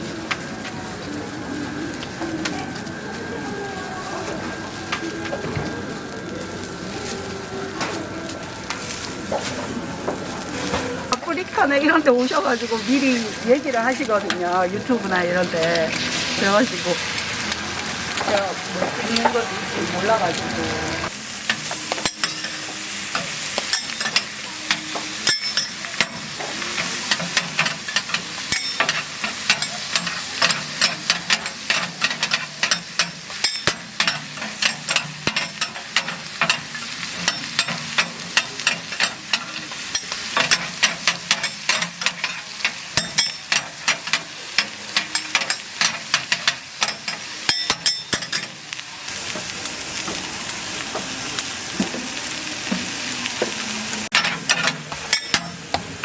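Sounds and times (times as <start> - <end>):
food sizzling on a griddle: 0.0 - 56.0
metal spatulas clicking and scraping: 21.5 - 48.6, 54.1 - 55.8.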